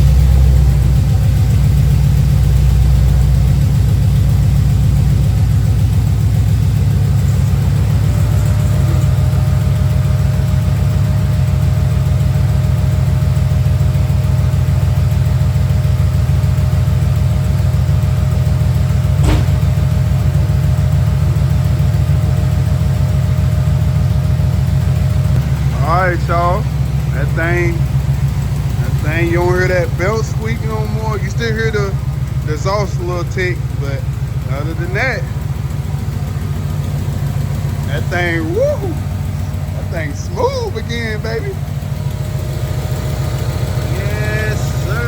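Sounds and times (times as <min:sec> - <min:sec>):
car engine idling: 0:00.0 - 0:45.0
exhaust tick: 0:00.0 - 0:45.0
sharp click: 0:19.2 - 0:19.7.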